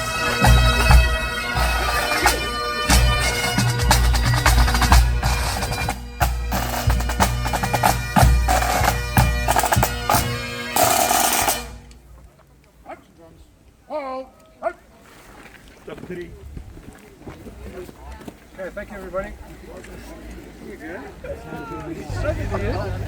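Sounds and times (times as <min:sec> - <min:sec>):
bagpipes playing: 0:00.0 - 0:11.9
drum beats: 0:00.0 - 0:11.9.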